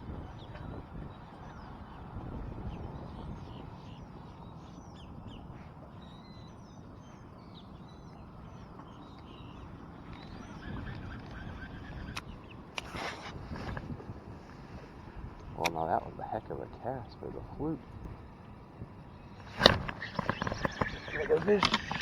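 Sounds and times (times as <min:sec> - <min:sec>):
wind buffeting microphone: 0:00.0 - 0:06.4, 0:07.2 - 0:22.0
bird chirps and calls: 0:02.7 - 0:13.1, 0:19.1 - 0:22.0.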